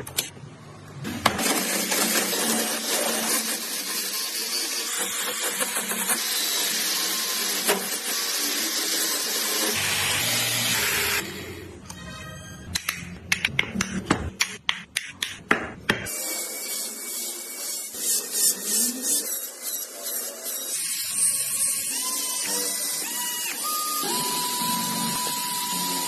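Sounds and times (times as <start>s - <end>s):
power tool cutting wood: 1.2s - 11.7s, 16.1s - 26.0s.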